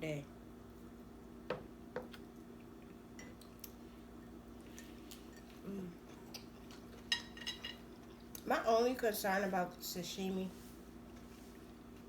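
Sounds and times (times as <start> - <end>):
utensils clinking on dishes: 7.0 - 7.9.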